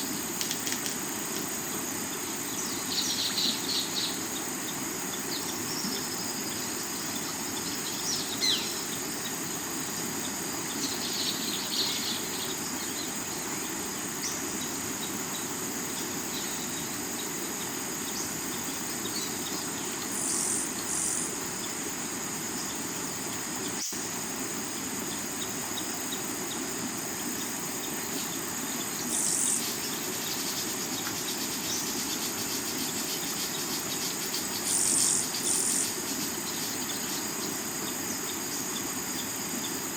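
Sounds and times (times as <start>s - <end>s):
crickets trilling: 0.0s - 39.9s
short insect bursts: 0.0s - 39.9s.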